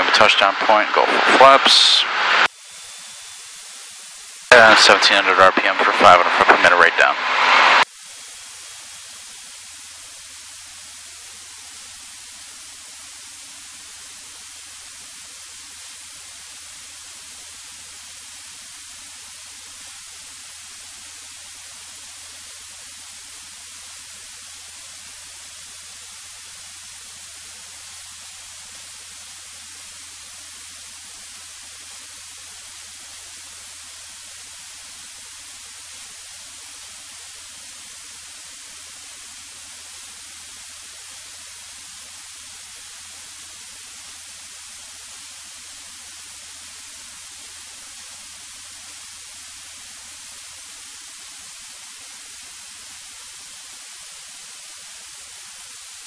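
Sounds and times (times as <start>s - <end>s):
intercom static hiss: 0.0s - 7.9s.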